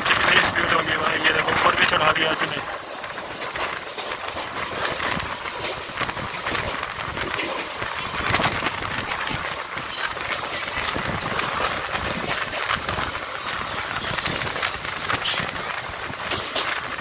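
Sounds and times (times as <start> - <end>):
train wheels rattling on rails: 0.0 - 17.0
rushing air: 10.6 - 17.0.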